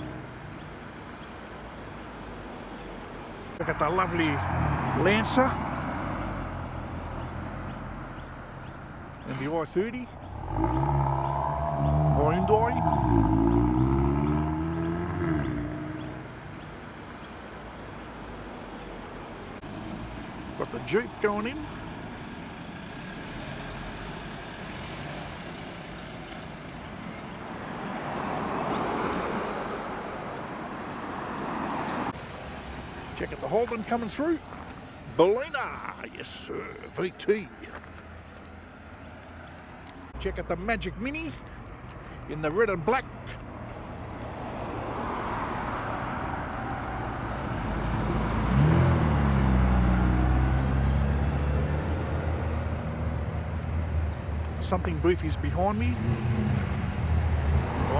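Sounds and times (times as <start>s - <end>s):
car engine approaching: 0.0s - 57.9s
vehicle rolling past: 3.6s - 17.3s, 18.8s - 57.9s
deeper engine note: 9.6s - 16.5s.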